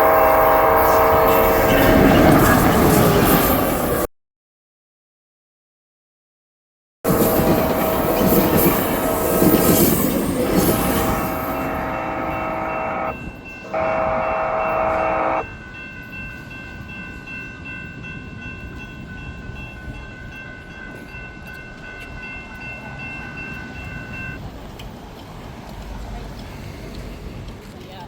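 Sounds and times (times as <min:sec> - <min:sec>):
train horn blasts: 0:00.0 - 0:02.5, 0:07.1 - 0:15.5
passing train noise: 0:00.0 - 0:04.1, 0:07.1 - 0:28.0
faint steady high tone: 0:07.4 - 0:15.6.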